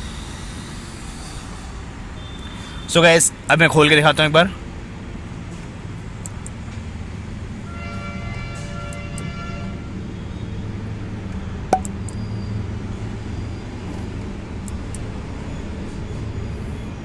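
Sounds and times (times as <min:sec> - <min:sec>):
sharp click: 0:11.7 - 0:12.2.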